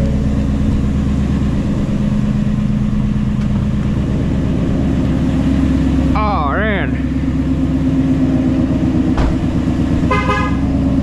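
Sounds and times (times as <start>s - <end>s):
car engine deep drone: 0.0s - 11.0s.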